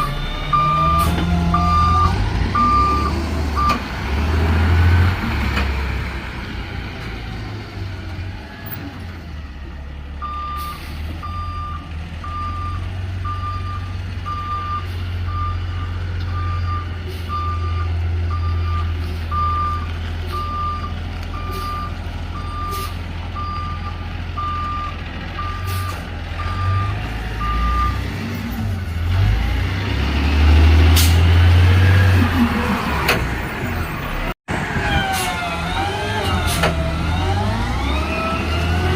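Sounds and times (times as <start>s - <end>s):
reversing alarm beeping: 0.0s - 3.8s, 10.2s - 22.8s, 23.4s - 28.0s
garbage truck engine: 0.0s - 38.9s.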